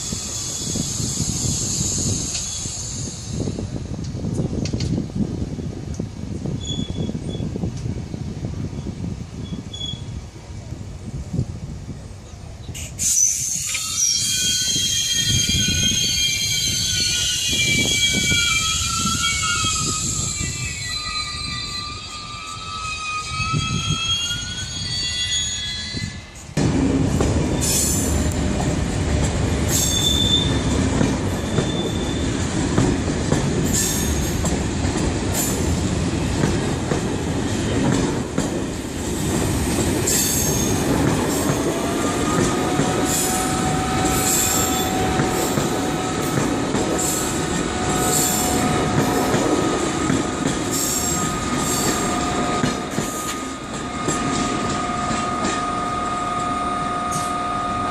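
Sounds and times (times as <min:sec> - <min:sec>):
train wheels rumbling on track: 0:00.0 - 0:57.9
wheel squeal: 0:06.6 - 0:07.5, 0:09.4 - 0:10.1, 0:12.8 - 0:26.3, 0:29.7 - 0:30.6, 0:31.4 - 0:32.3, 0:50.7 - 0:55.8.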